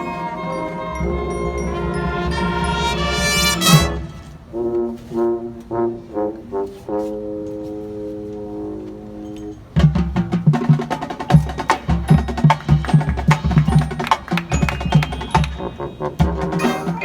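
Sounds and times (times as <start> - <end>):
ringing mallet percussion: 0.0 - 4.0, 11.3 - 16.0
brass chord: 0.0 - 9.2, 15.6 - 17.0.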